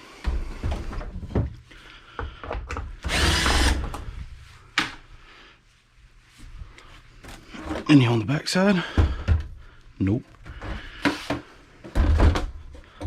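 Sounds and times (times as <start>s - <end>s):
power drill running: 3.1s - 4.0s.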